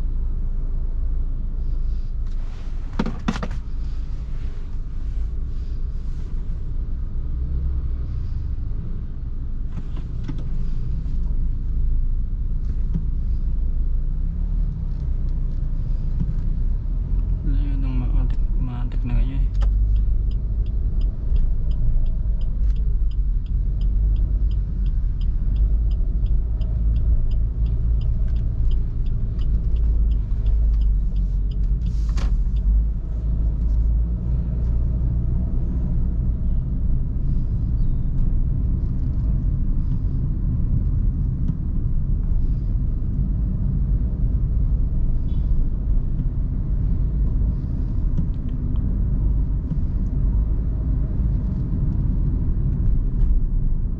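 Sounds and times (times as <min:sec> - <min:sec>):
vehicle engine and road rumble: 0:00.0 - 0:53.9
regular ticking: 0:17.4 - 0:33.6.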